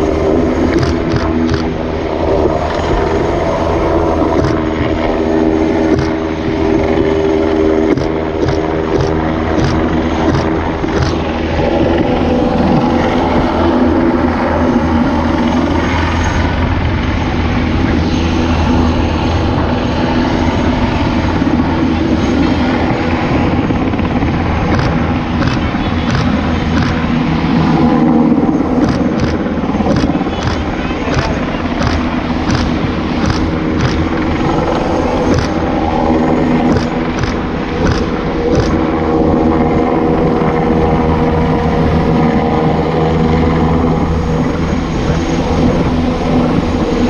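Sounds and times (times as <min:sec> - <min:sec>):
helicopter turbine and rotor: 0:00.0 - 0:47.0
rotor beat: 0:00.7 - 0:01.8, 0:04.1 - 0:13.7, 0:22.7 - 0:27.3, 0:28.6 - 0:39.0.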